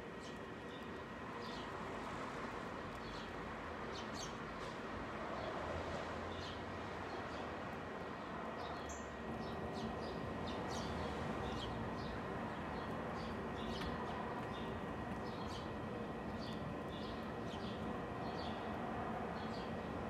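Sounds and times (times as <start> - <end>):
small birds chirping: 8.6 - 18.8, 19.4 - 19.9.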